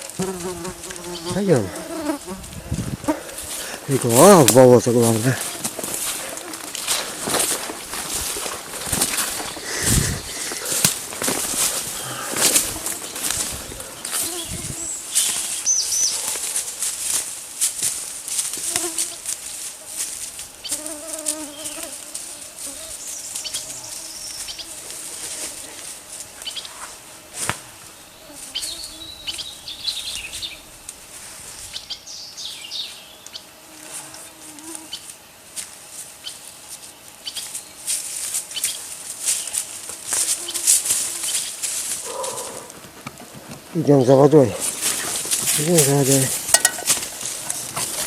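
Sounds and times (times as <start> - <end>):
fly buzzing: 0.0 - 17.0, 18.4 - 29.5, 33.5 - 35.2, 39.6 - 42.9
footsteps in undergrowth: 0.0 - 29.5, 30.8 - 31.9, 33.8 - 48.0
bird chirps: 14.3 - 16.3.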